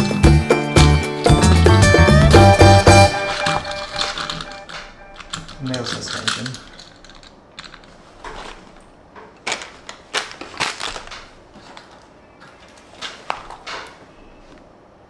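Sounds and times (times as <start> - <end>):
toy car clicks and taps: 3.3 - 7.9.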